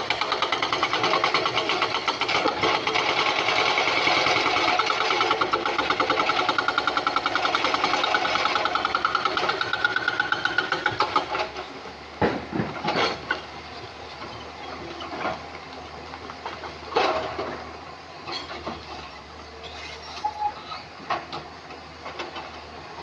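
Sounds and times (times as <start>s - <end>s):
hydraulic breaker hammering stone: 0.0s - 11.6s
excavator engine hum: 0.0s - 23.0s.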